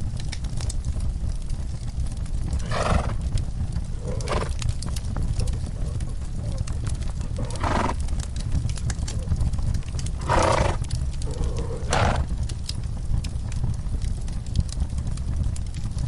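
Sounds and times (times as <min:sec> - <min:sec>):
fireplace crackling and popping: 0:00.0 - 0:16.0
horse snorting: 0:02.6 - 0:03.2, 0:04.0 - 0:04.6, 0:05.4 - 0:06.6, 0:07.2 - 0:08.0, 0:10.2 - 0:12.4.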